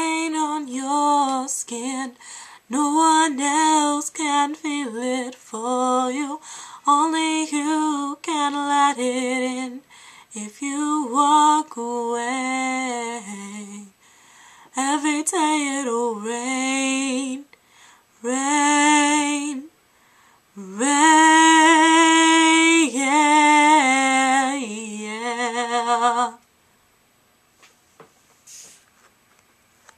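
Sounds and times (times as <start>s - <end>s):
woman singing unaccompanied: 0.0s - 14.0s, 14.6s - 17.6s, 18.2s - 19.7s, 20.5s - 26.4s.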